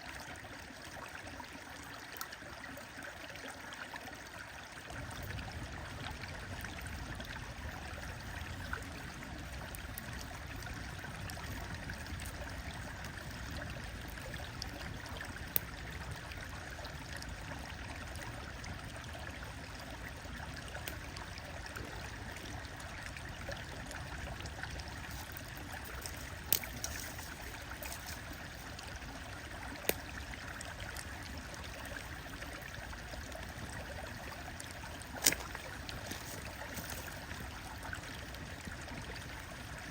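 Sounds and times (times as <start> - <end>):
stream running: 0.0 - 39.9
wood fire crackling pops: 25.2 - 28.5, 29.8 - 30.2.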